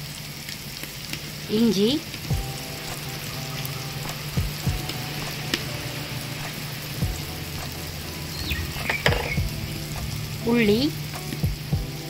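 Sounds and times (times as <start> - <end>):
vegetables sizzling in butter: 0.0 - 12.0
soft knocks: 8.8 - 9.5.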